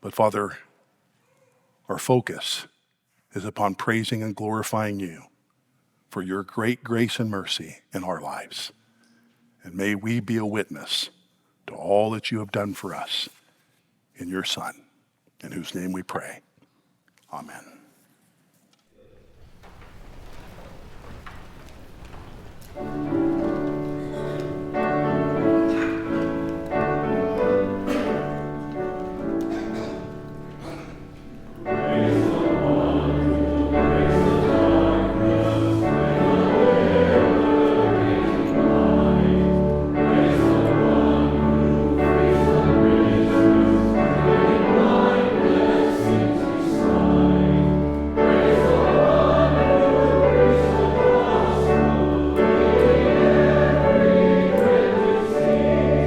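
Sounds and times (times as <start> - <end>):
congregation singing a hymn: 22.8 - 56.0.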